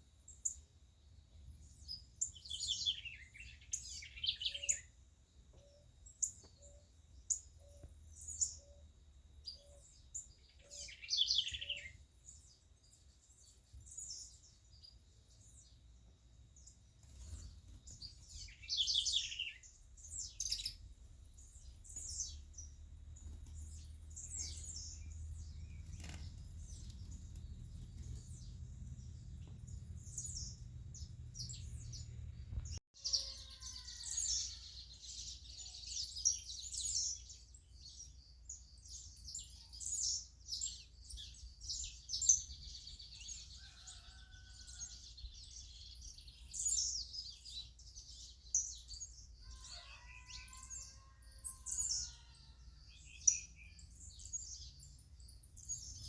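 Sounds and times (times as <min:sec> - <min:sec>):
songbirds chirping: 0:00.0 - 0:56.0
low background rumble: 0:19.8 - 0:32.8.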